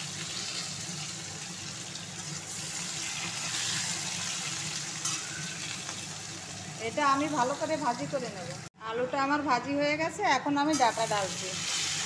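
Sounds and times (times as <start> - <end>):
potato wedges sizzling in oil: 0.0 - 8.7, 10.7 - 12.0.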